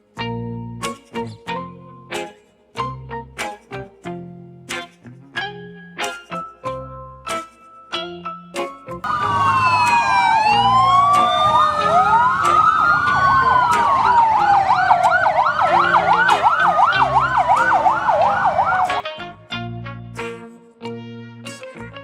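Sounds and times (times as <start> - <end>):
sirens wailing: 9.0 - 19.0
siren fast warbling yelp: 9.1 - 19.0.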